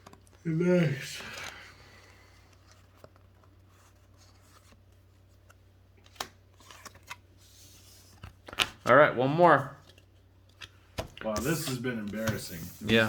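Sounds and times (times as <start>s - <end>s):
trading cards clicking and rustling: 9.8s - 13.0s.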